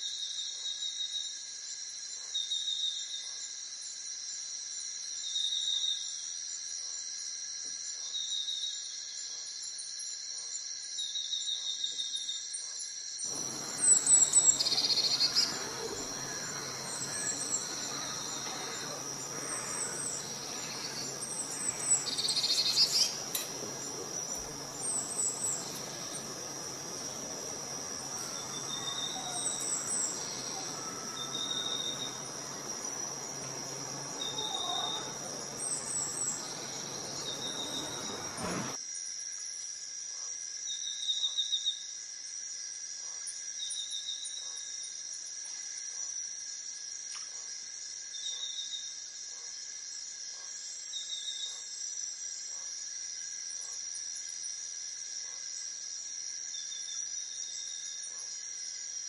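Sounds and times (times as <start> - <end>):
background hiss: 13.3 - 38.8
high-pitched ringing drone: 13.3 - 38.8
small birds chirping: 13.3 - 38.8.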